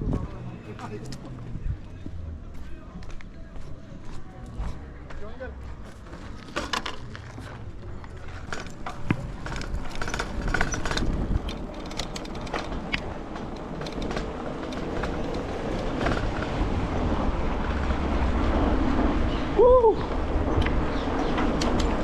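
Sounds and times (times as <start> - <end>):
bike tyre noise: 5.9 - 17.4
clicks and rattles: 6.4 - 16.5
wind on microphone: 9.0 - 22.0.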